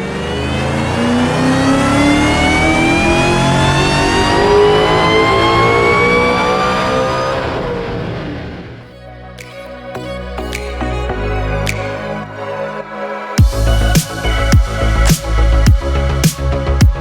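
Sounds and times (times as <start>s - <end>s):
car engine accelerating hard: 0.0s - 8.8s.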